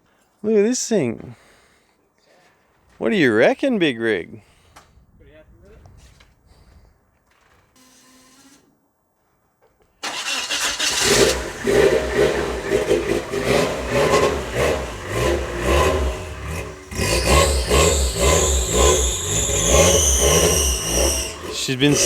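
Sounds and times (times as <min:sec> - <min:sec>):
car engine revving: 0:10.1 - 0:22.0.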